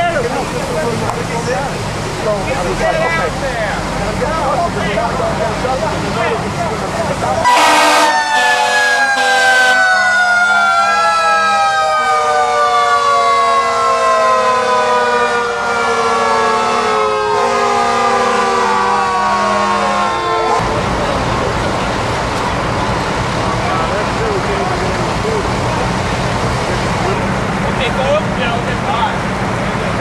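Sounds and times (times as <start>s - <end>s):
fire truck sirens wailing: 0.0s - 30.0s.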